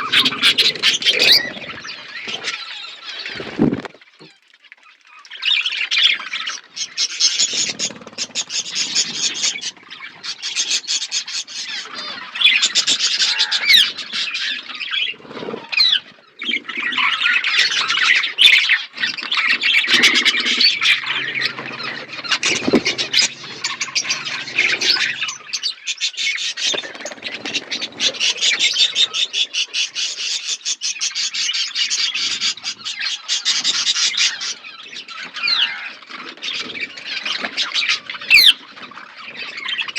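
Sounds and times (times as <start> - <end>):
budgerigars chattering and chirping: 0.0 - 3.6, 5.4 - 39.9.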